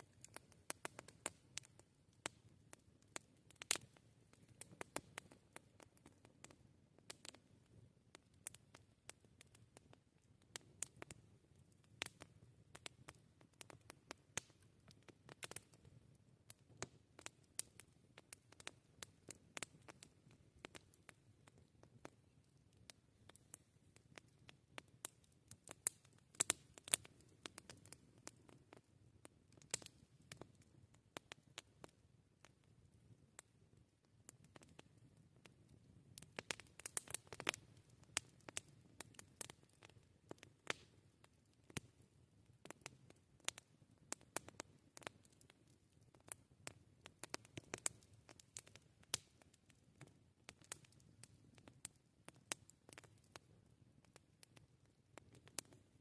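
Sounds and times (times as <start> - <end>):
campfire crackling: 0.0 - 56.0
faint low background noise: 0.0 - 56.0.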